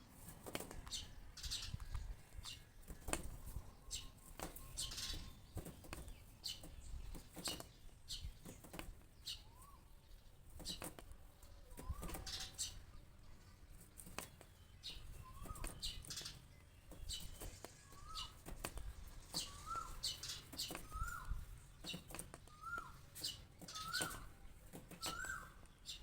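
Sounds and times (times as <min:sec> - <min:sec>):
small bird calling: 0:00.0 - 0:26.0.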